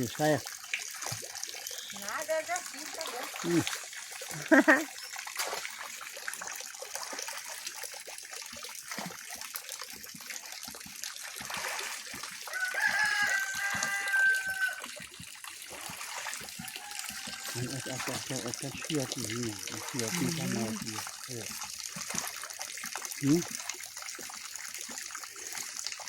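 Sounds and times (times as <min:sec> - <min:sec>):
water splashing and trickling: 0:00.0 - 0:26.0
rooster crowing: 0:12.5 - 0:14.9, 0:16.6 - 0:18.1.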